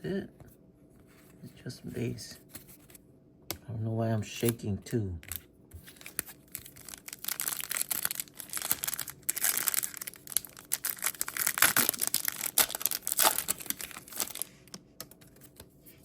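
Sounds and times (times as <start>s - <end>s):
foil wrapper crinkling and tearing: 5.2s - 14.7s.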